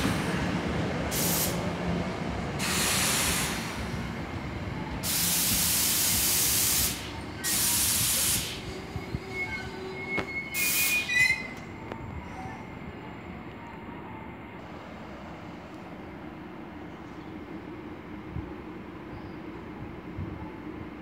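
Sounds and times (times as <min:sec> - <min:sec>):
train rumble: 0:00.0 - 0:21.0
air brakes hissing: 0:01.1 - 0:01.6, 0:02.6 - 0:04.2, 0:05.0 - 0:11.7
wheels and brakes squealing: 0:07.0 - 0:12.8.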